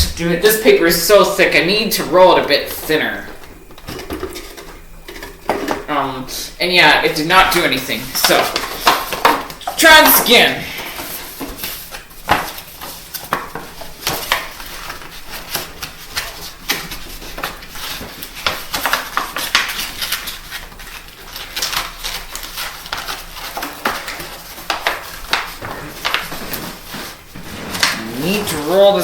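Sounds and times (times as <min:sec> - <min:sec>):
paper rustling: 0:08.2 - 0:29.0.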